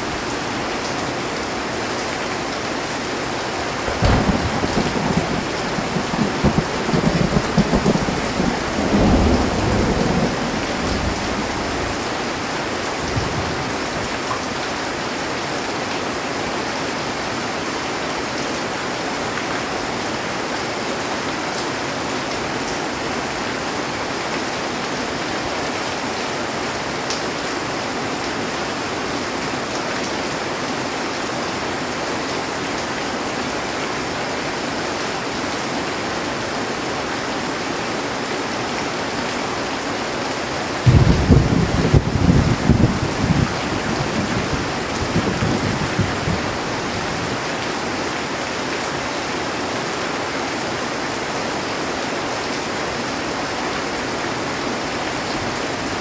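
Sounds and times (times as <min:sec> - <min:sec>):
heavy rain on metal roof: 0:00.0 - 0:56.0
thunder rumbling: 0:03.6 - 0:14.0, 0:40.9 - 0:47.5.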